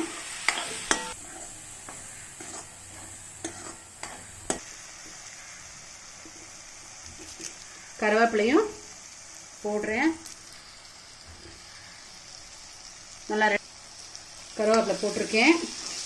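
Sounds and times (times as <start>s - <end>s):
steel spoon scraping a pan: 0.0s - 5.6s
masala sizzling in a pan: 0.0s - 16.0s.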